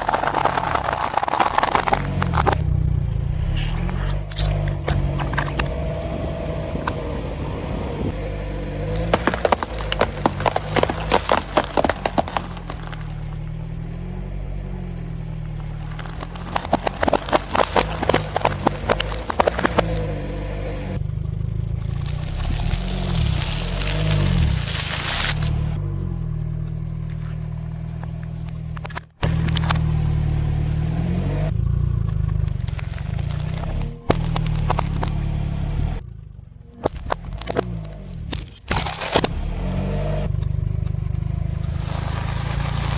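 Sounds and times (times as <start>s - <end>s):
tyre crushing brittle objects: 0.0s - 2.6s, 8.8s - 13.8s, 15.5s - 20.2s, 21.8s - 25.6s, 32.1s - 35.3s, 36.8s - 39.8s, 41.6s - 42.9s
car engine humming: 0.0s - 42.9s.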